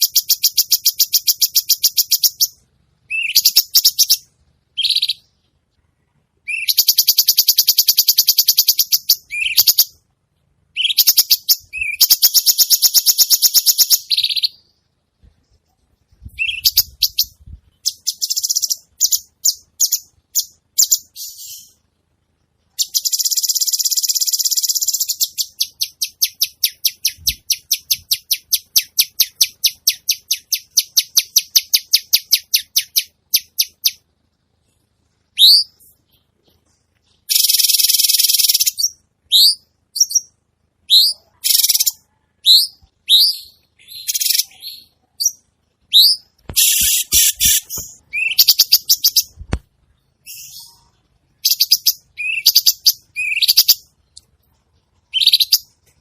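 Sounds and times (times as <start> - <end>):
songbird harsh rasping song: 0.0 - 5.6, 6.4 - 10.0, 10.7 - 21.8, 35.2 - 56.0.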